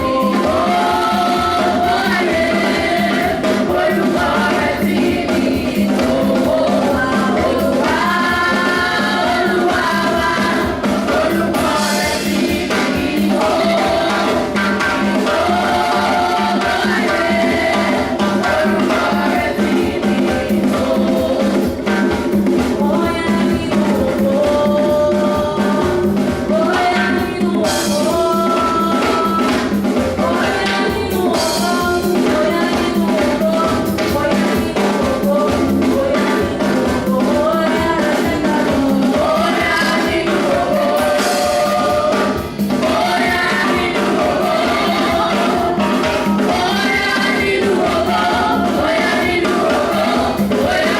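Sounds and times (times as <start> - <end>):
choir singing: 0.0 - 50.9
drums and percussion: 0.0 - 50.9.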